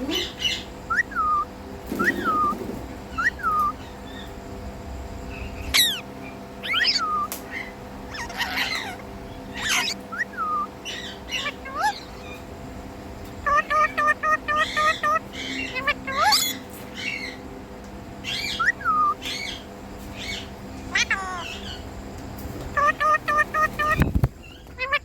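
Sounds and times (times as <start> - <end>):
parrot chirping and screeching: 0.2 - 4.3, 5.7 - 12.4, 13.4 - 17.4, 18.2 - 21.8, 22.7 - 25.0
sharp falling whistles: 0.9 - 2.6.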